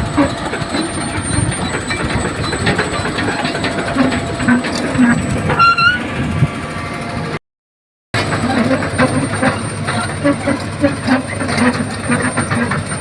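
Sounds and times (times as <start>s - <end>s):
excavator diesel engine running: 0.0s - 7.4s, 8.2s - 13.0s
indistinct voices: 8.2s - 13.0s.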